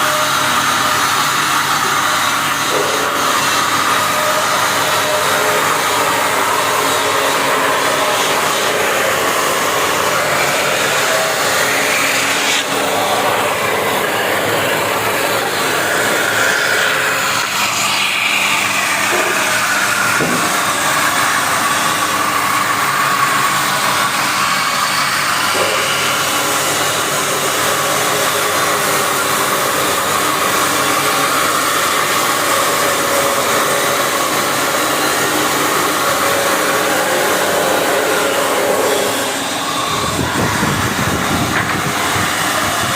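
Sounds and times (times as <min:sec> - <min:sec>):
sanding machine whirring: 0:00.0 - 0:42.9.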